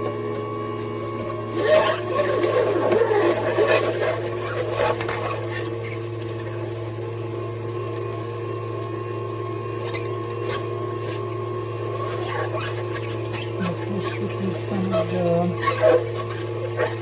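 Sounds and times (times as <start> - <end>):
electric juicer motor humming: 0.0 - 17.0.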